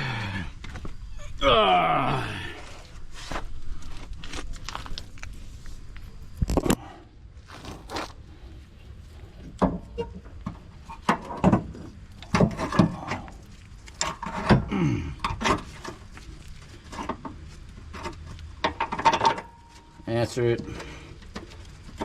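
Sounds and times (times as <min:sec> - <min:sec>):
metal clanks and knocks: 0:09.6 - 0:13.3, 0:14.0 - 0:16.0, 0:16.9 - 0:22.0.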